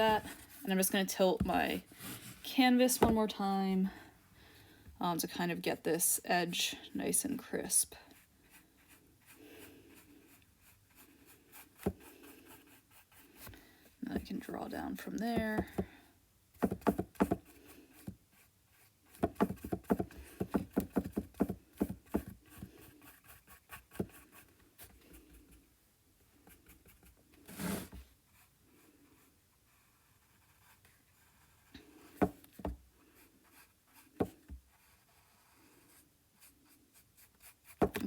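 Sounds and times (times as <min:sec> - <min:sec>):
paintbrush strokes on canvas: 0:00.0 - 0:03.2, 0:07.5 - 0:13.5, 0:26.5 - 0:32.2, 0:33.0 - 0:37.8.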